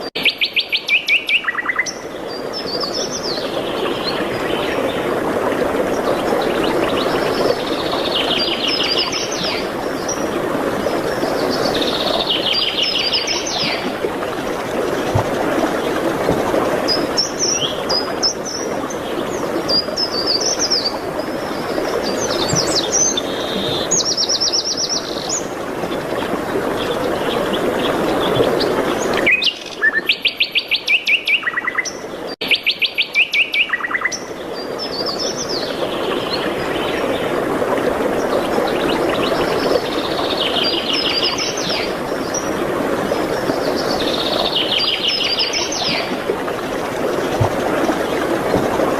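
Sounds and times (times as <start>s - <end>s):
songbirds chirping and trilling: 0.0s - 14.0s, 16.8s - 37.3s.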